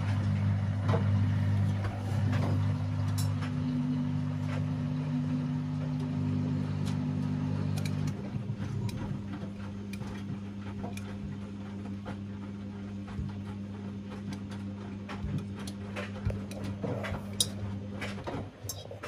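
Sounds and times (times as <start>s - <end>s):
washing machine pump humming: 0.0s - 19.0s.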